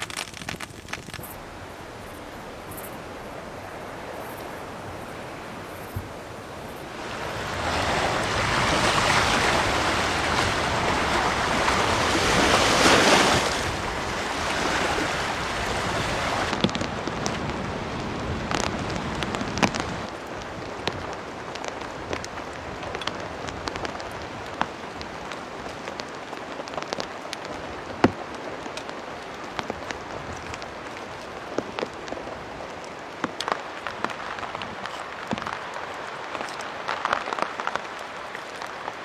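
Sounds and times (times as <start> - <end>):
sharp raindrops landing: 0.0 - 7.5, 16.5 - 39.0
rain and wind rushing: 0.0 - 39.0.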